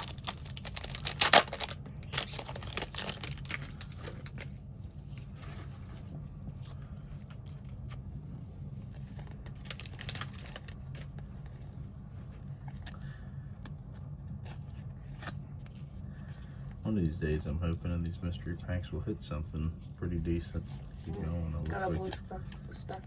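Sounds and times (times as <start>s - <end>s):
foil wrappers tearing and crinkling: 0.0s - 4.5s, 9.6s - 11.0s
steady low hum: 0.0s - 23.0s.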